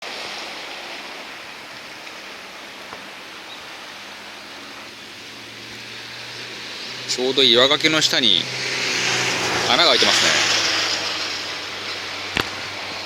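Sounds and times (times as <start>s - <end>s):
sea surf rushing: 0.0s - 13.0s.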